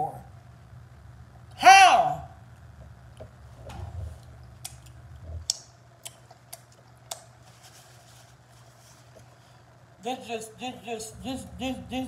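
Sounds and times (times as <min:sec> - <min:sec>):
wet mouth smacks: 0:04.6 - 0:07.3.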